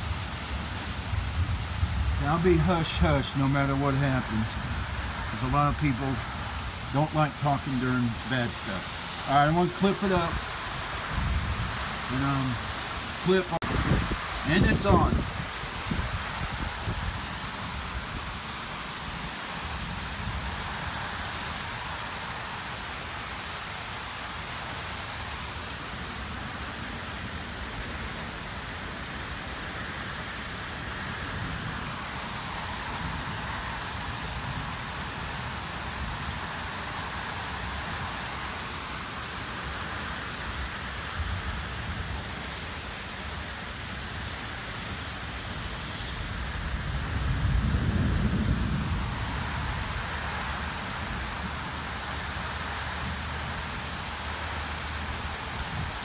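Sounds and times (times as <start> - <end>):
heavy rain pouring: 0.0 - 56.0
low rumble of wind gusts: 0.0 - 56.0.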